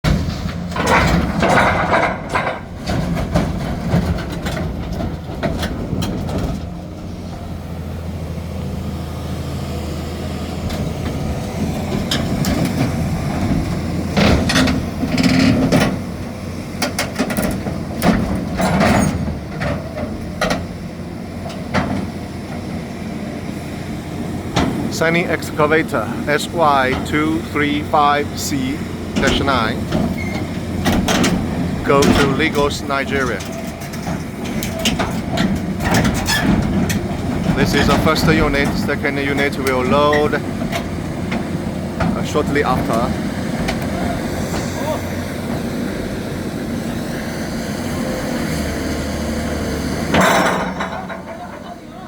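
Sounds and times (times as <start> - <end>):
heavy diesel engine running: 0.0 - 52.0
sudden bursts and knocks: 24.6 - 43.9.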